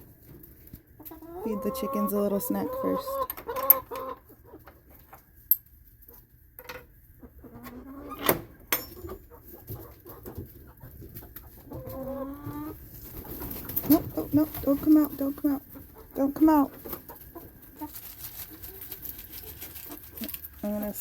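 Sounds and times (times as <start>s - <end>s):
hens clucking and squawking: 0.0s - 5.4s, 7.0s - 8.2s, 9.0s - 21.0s.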